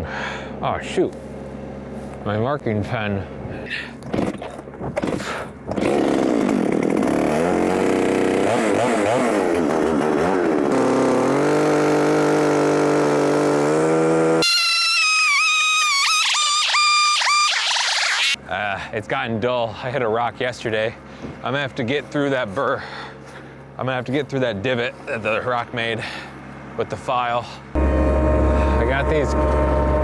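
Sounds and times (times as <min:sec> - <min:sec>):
small engine running: 0:04.1 - 0:18.4, 0:27.8 - 0:30.0
high wavering whine: 0:14.4 - 0:18.4, 0:27.8 - 0:30.0.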